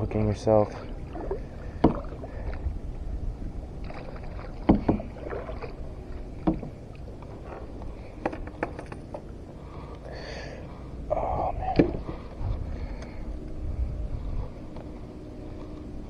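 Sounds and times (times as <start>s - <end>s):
gear knocking on kayak: 1.2s - 2.6s, 3.8s - 9.3s
low rumble: 10.8s - 15.8s.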